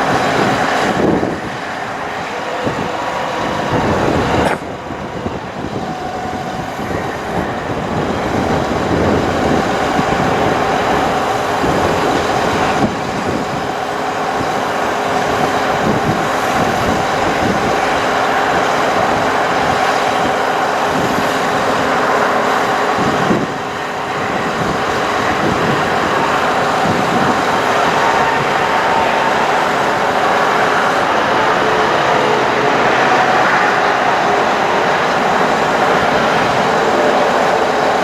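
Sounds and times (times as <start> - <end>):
constant whine: 0.0 - 38.0
diesel engine running: 0.0 - 38.0.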